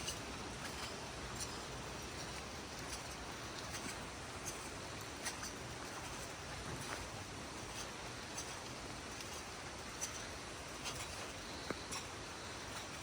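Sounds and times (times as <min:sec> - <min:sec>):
faint sharp ticks and taps: 0:11.6 - 0:12.1.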